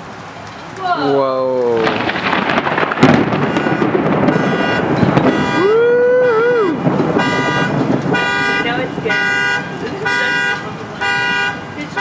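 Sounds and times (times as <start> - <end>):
heavy rain: 0.0 - 12.0
thunderclap: 1.6 - 12.0
car alarm honking: 3.2 - 6.4, 7.0 - 12.0.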